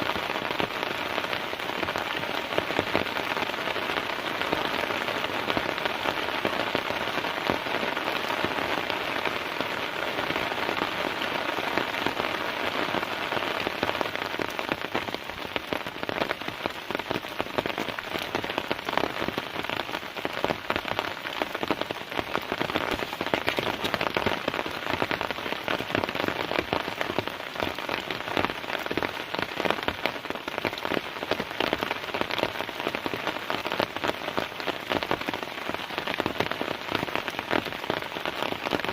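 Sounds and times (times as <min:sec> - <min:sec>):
heavy rain falling: 0:00.0 - 0:38.9
raindrops hitting close: 0:00.0 - 0:38.9.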